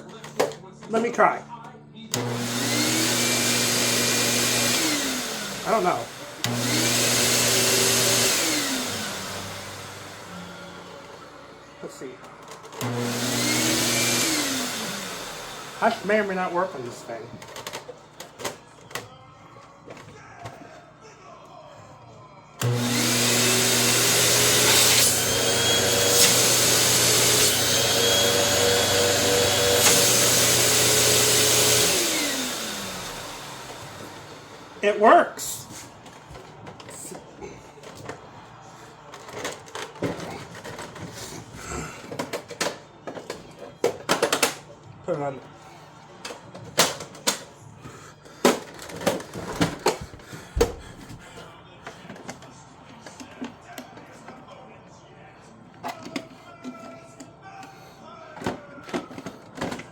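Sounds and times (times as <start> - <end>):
vacuum cleaner motor whine: 2.1 - 19.1, 22.6 - 44.6
plastic parts clicking and knocking: 39.1 - 41.2, 42.0 - 44.7, 46.2 - 47.5, 48.4 - 50.9, 58.4 - 59.9.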